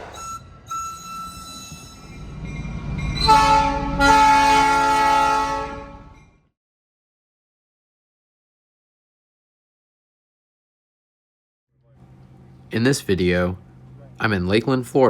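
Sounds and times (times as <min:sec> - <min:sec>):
locomotive air horn blasts: 0:03.1 - 0:06.2.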